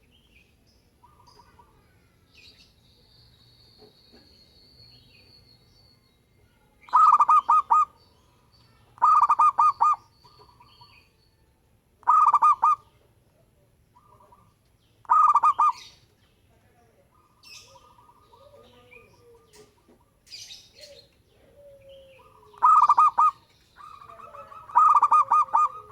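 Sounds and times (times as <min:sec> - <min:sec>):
high bird chirps: 0:06.8 - 0:11.4
dove cooing: 0:06.9 - 0:08.0, 0:09.0 - 0:10.6, 0:12.0 - 0:12.9, 0:15.1 - 0:15.9, 0:17.4 - 0:20.1, 0:20.8 - 0:25.9.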